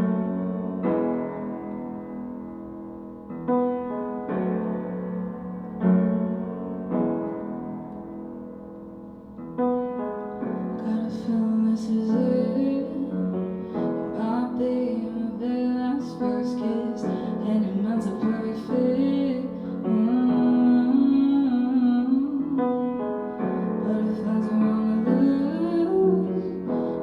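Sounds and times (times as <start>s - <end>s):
piano chords: 0.0s - 27.0s
woman singing: 10.8s - 23.0s, 23.6s - 27.0s.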